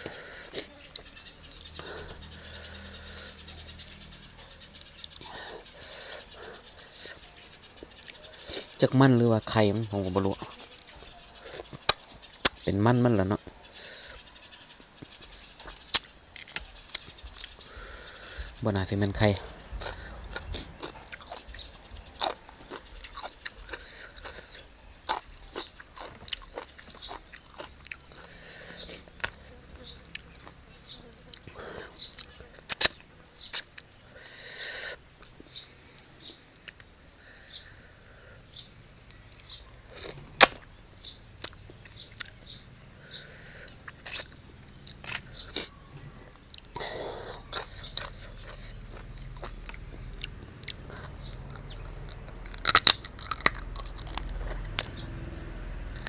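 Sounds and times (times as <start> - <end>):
chewing and biting: 14.9 - 34.0, 39.1 - 40.8, 41.4 - 42.7, 43.5 - 56.0.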